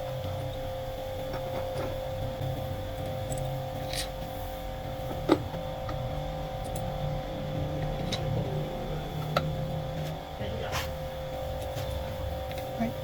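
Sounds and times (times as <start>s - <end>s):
machine running hum: 0.0s - 13.0s.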